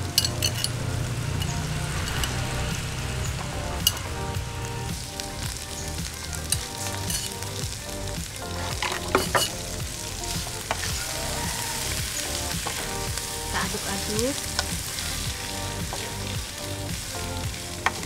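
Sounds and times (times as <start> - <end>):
chicken sizzling in a wok: 0.0 - 18.0
tongs and spatula scraping a pan: 0.1 - 2.7, 5.8 - 7.4, 8.6 - 16.2.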